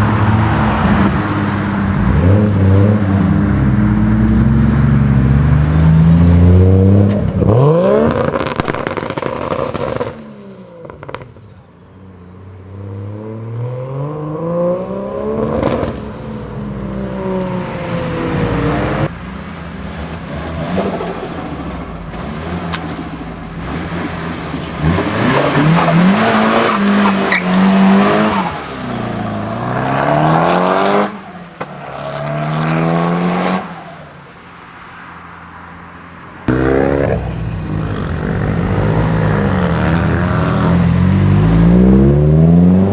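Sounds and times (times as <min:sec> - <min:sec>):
car engines revving hard: 0:00.0 - 0:11.5, 0:12.1 - 0:42.9.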